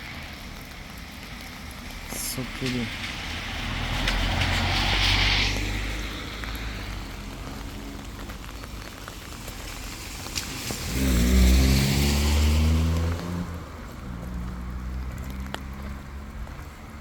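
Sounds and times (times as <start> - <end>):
vehicle engine hum: 0.0 - 17.0
car tyres hissing by: 2.9 - 7.2, 9.5 - 13.4.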